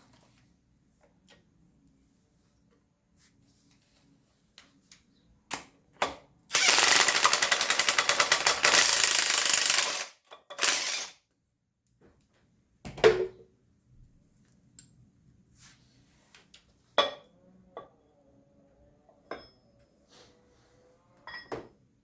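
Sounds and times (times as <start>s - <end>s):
impact wrench hammering: 6.6s - 11.1s.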